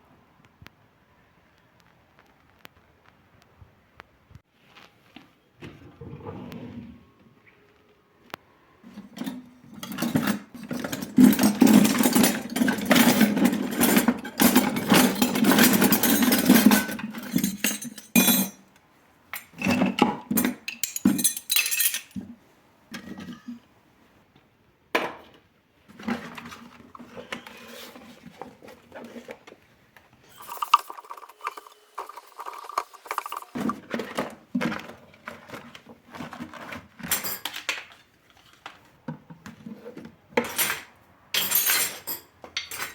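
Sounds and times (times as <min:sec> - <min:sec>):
dishes and cutlery clattering: 0:08.9 - 0:18.7, 0:19.4 - 0:22.2, 0:23.0 - 0:23.6, 0:33.1 - 0:37.8, 0:39.8 - 0:42.9.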